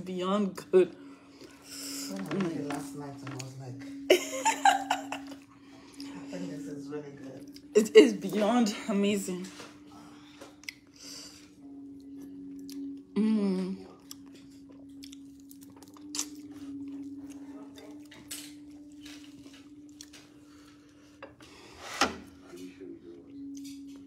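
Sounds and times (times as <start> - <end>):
person chewing: 10.4 - 21.2
person humming: 13.1 - 14.0.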